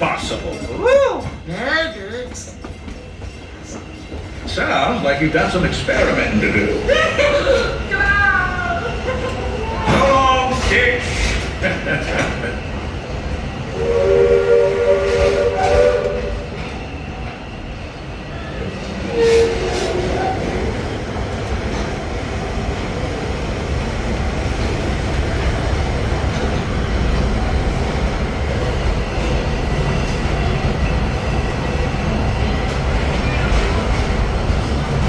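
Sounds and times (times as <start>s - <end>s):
train rumbling with wheel clatter: 0.0s - 35.0s
train whistle: 13.7s - 16.6s, 19.0s - 20.7s.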